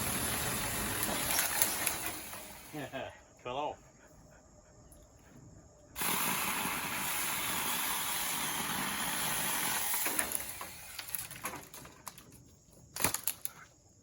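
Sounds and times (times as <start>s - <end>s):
chainsaw cutting dry wood: 0.0s - 3.0s, 6.0s - 11.8s.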